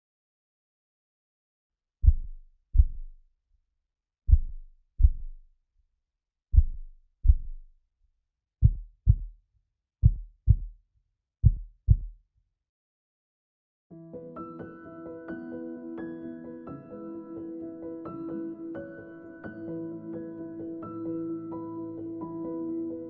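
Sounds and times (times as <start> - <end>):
heartbeat thumps: 2.0 - 3.2, 4.3 - 5.4, 6.5 - 7.7, 8.6 - 9.4, 10.0 - 10.8, 11.4 - 12.2.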